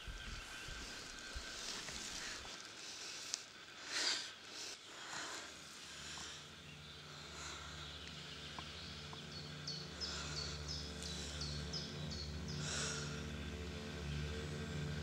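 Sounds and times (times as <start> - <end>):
low steady drone: 0.0 - 15.0
bird chirping: 4.5 - 14.8.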